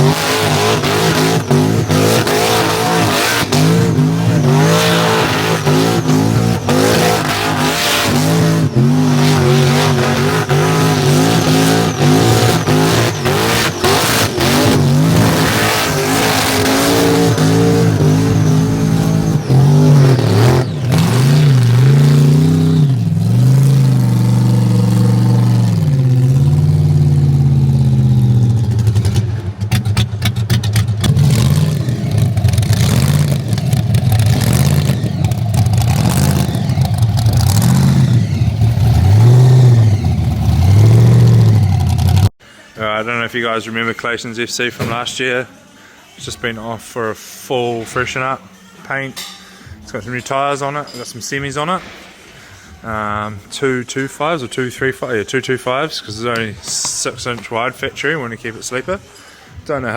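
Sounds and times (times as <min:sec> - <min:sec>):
car engine revving hard: 0:00.0 - 0:42.4.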